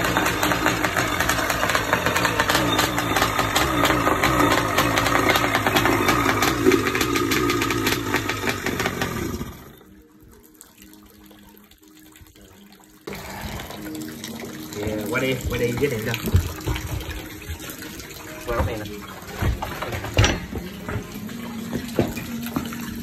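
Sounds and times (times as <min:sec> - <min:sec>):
two-stroke engine running: 0:00.0 - 0:09.9
running water rushing: 0:00.0 - 0:23.0.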